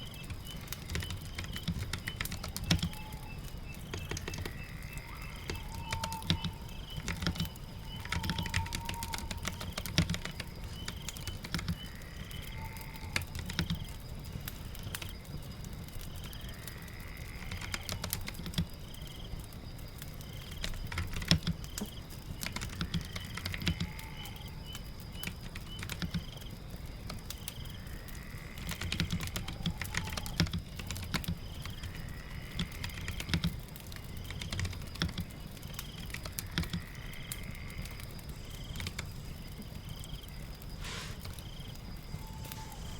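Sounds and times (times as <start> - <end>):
rain: 0.0 - 42.9
typing on a keyboard: 0.1 - 15.3, 17.3 - 19.2, 20.0 - 27.6, 28.6 - 39.2
faint rising chirps: 40.0 - 42.9.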